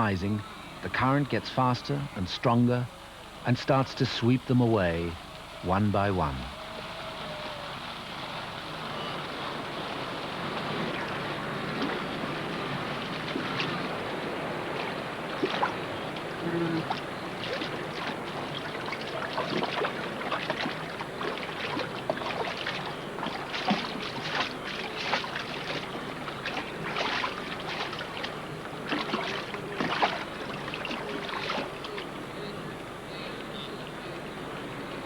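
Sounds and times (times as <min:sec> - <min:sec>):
floodwater rushing: 0:00.0 - 0:33.0
animals splashing in water: 0:06.6 - 0:32.9.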